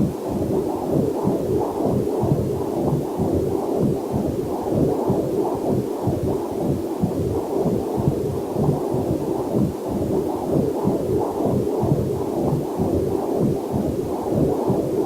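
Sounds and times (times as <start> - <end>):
fetal heartbeat whooshing pulse: 0.0 - 15.0.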